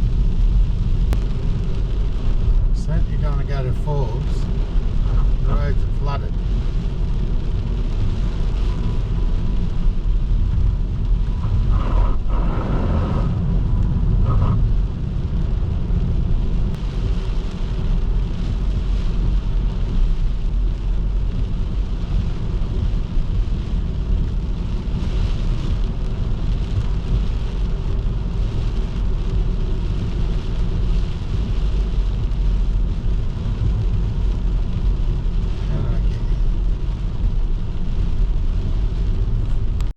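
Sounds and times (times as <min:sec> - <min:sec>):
car driving on wet road: 0:00.0 - 0:39.9.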